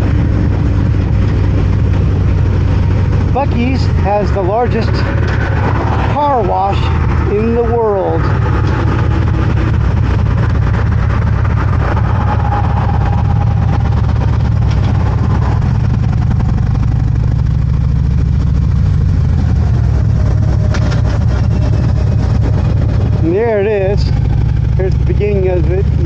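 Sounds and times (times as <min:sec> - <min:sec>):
motorcycle engine rumbling: 0:00.0 - 0:26.0.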